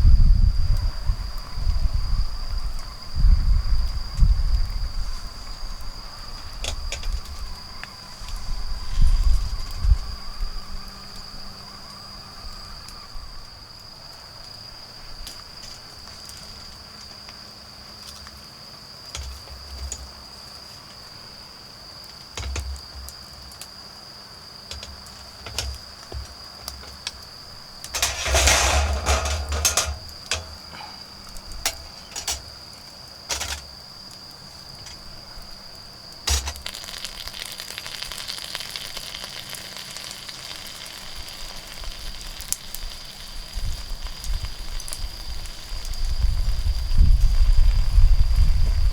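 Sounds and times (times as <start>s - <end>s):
fire hissing and sizzling: 0.0s - 11.5s, 12.8s - 48.9s
insects trilling: 0.0s - 48.9s
loud rustling: 24.7s - 32.7s, 33.3s - 33.8s
bonfire crackling and popping: 36.0s - 46.9s.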